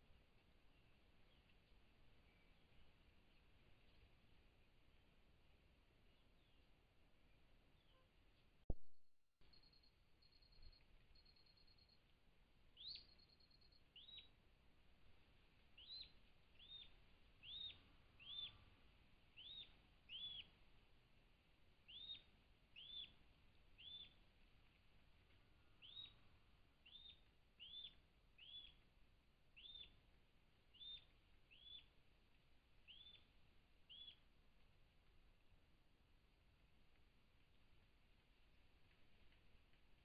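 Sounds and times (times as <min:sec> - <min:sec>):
small bird chirping: 0:09.4 - 0:12.1, 0:12.8 - 0:14.4, 0:15.8 - 0:20.6, 0:21.8 - 0:24.8, 0:25.6 - 0:28.9, 0:29.5 - 0:30.1, 0:30.7 - 0:32.0, 0:32.8 - 0:34.4
faint background hiss: 0:09.5 - 0:40.0.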